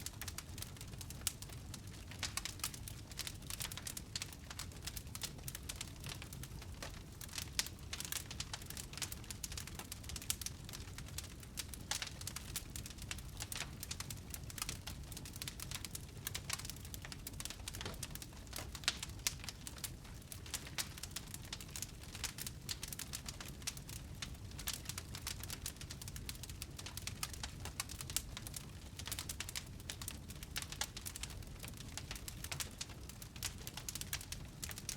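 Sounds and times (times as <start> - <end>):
fire crackling and popping: 0.0 - 34.9
low rumble of flames: 0.0 - 34.9.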